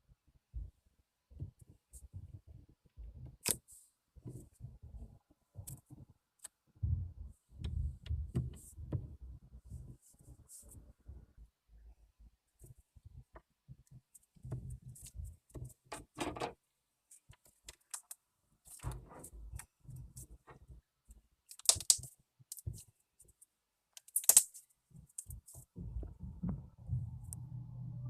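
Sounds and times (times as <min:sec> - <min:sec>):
slime squelching and clicking: 0:21.5 - 0:22.8, 0:24.0 - 0:25.4.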